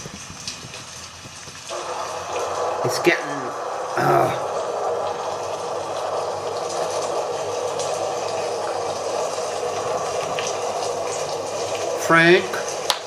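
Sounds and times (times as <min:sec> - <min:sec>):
heavy rain hissing: 0:00.0 - 0:13.0.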